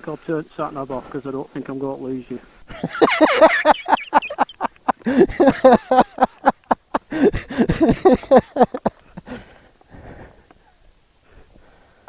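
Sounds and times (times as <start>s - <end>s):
man laughing hard: 2.7s - 9.5s.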